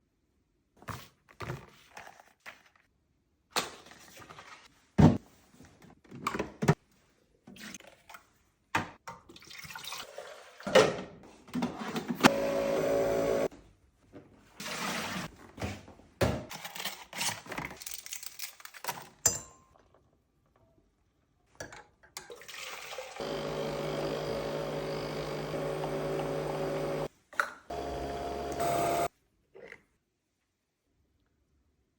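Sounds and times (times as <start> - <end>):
coffee machine humming: 12.3 - 13.5, 23.2 - 27.1, 27.7 - 29.1
water pouring: 22.3 - 23.2.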